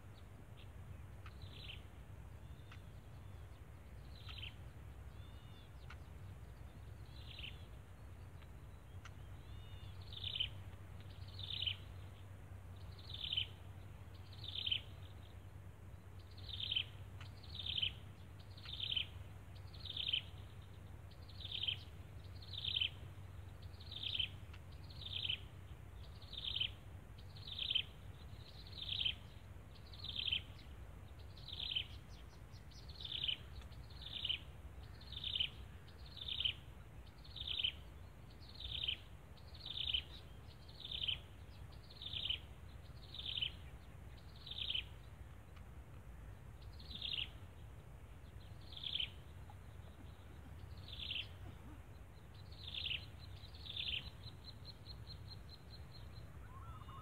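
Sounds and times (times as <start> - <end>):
bird call falling in pitch: 56.4 - 57.0.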